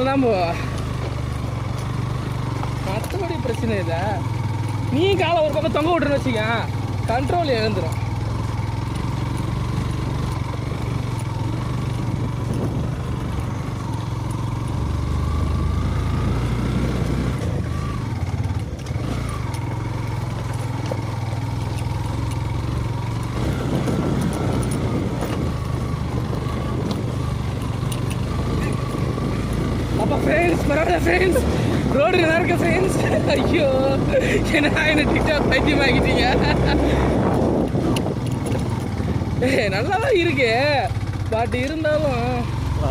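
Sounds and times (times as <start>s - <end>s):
motorcycle engine at low revs: 0.0s - 42.9s
rough rumbling noise: 9.6s - 42.9s.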